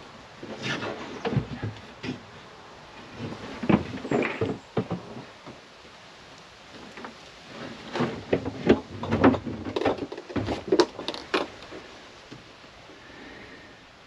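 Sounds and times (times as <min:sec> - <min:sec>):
objects knocking and clattering: 0:07.8 - 0:11.8.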